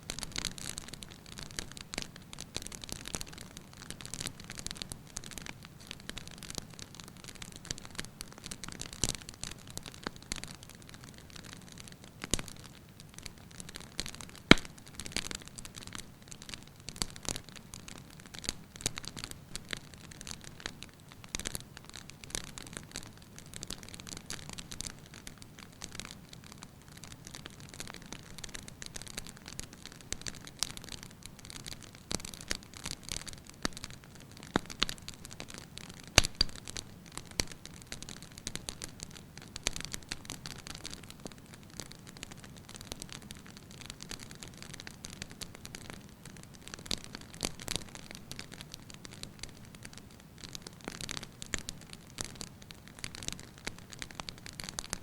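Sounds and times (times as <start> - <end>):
firewood crackling: 0.1 - 55.0
sharp wood snaps: 14.5 - 14.7, 36.2 - 36.6.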